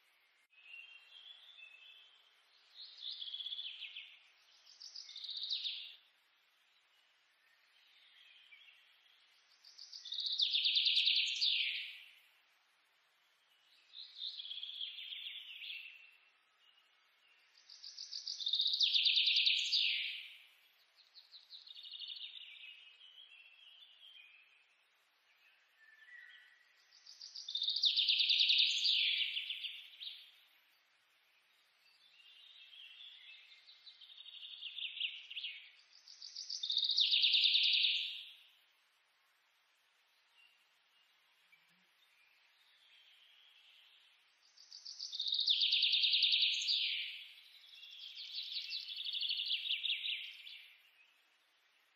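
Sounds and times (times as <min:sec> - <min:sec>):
birds singing in rapid trills: 0:25.3 - 0:30.5, 0:31.8 - 0:38.6, 0:42.0 - 0:51.2.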